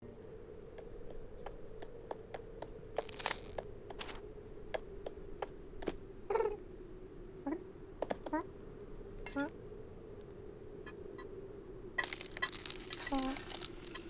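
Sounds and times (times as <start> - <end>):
faint steady hum: 0.0 - 14.0
light ticking taps: 0.8 - 2.8, 8.0 - 8.4.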